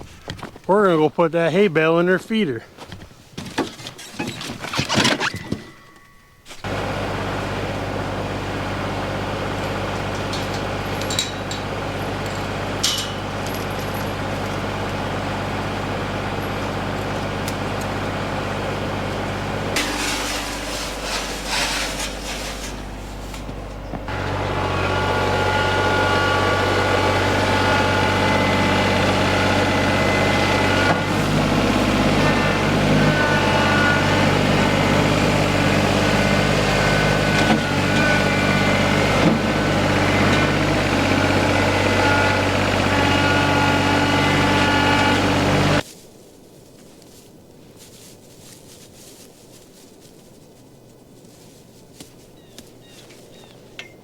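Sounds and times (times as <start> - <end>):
tractor engine running: 5.0 - 45.8.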